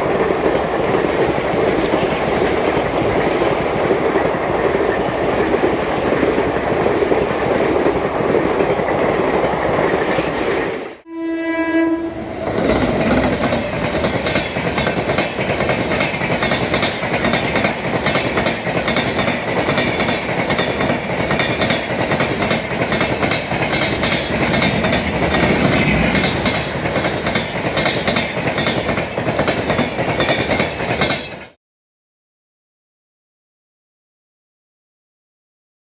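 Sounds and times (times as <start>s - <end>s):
locomotive horn: 11.0s - 13.2s
train wheels clattering: 12.4s - 31.6s.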